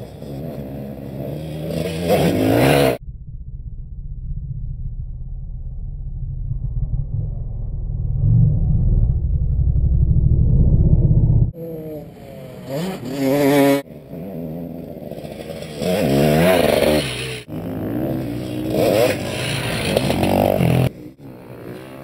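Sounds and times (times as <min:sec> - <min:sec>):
motocross engine revving: 0:00.0 - 0:03.0, 0:11.5 - 0:22.0.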